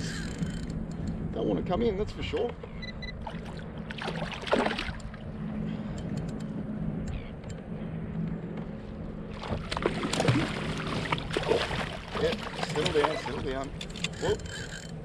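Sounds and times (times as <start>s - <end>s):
steady low hum: 0.0s - 15.0s
water sloshing against kayak: 9.3s - 14.8s.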